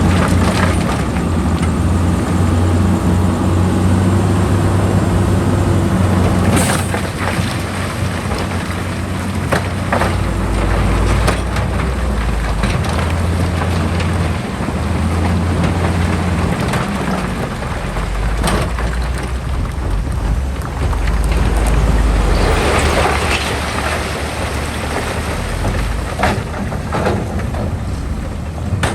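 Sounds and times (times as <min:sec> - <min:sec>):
heavy diesel machinery running: 0:00.0 - 0:28.9
knocks and clatters: 0:06.2 - 0:28.9.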